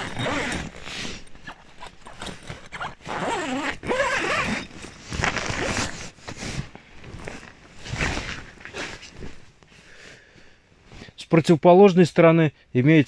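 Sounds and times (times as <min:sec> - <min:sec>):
tent zipper pulled: 0:00.0 - 0:09.4.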